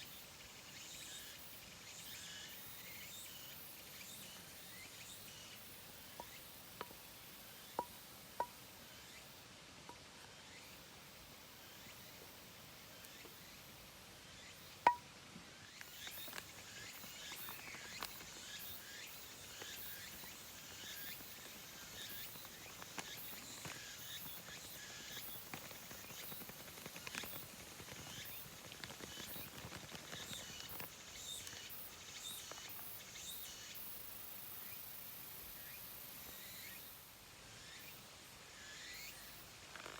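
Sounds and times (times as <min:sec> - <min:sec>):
faint small clicks and crackles: 0:15.7 - 0:33.7, 0:39.5 - 0:39.9.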